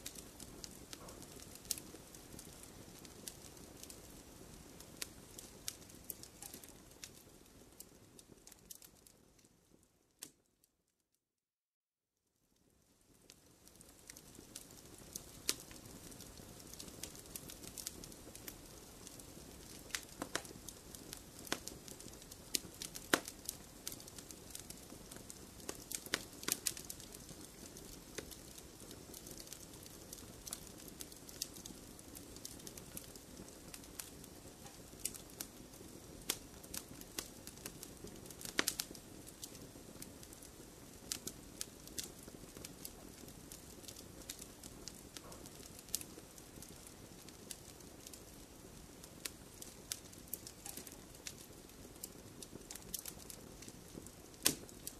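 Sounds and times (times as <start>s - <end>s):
burning logs popping and crackling: 0.0s - 10.4s, 12.9s - 54.9s
fire hissing: 13.7s - 54.9s.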